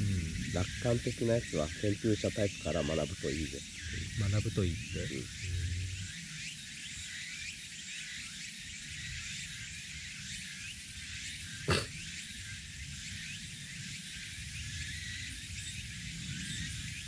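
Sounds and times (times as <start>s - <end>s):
campfire rumble and hiss: 0.0s - 7.5s, 8.8s - 17.0s.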